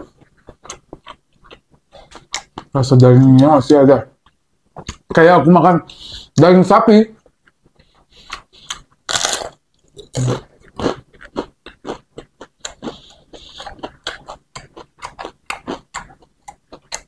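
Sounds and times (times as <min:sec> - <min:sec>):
chewing and biting food: 0:00.0 - 0:02.8, 0:07.3 - 0:17.0.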